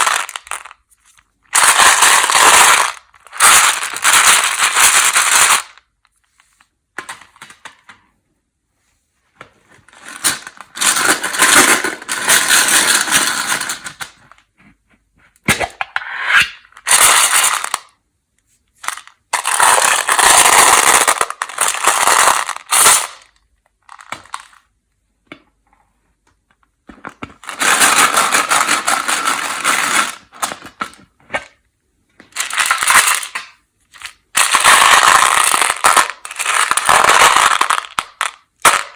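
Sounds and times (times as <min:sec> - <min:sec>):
candy and plastic wrappers crackling: 0:00.0 - 0:05.9, 0:18.9 - 0:24.5, 0:32.4 - 0:38.9.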